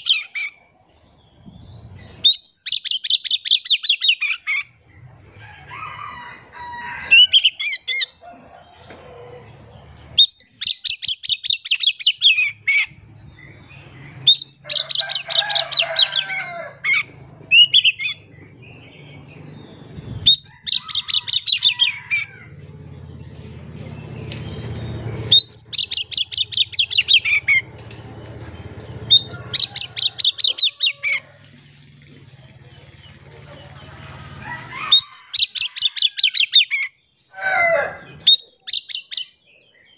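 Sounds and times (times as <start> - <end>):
bird trilling loudly: 20.2 - 22.5, 25.3 - 27.6, 29.1 - 31.2, 34.7 - 39.4.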